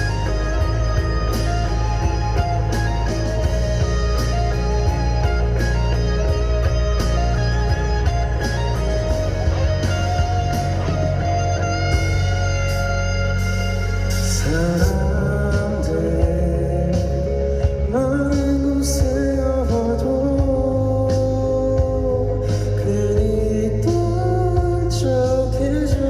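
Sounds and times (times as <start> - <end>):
rock band playing: 0.0 - 26.0.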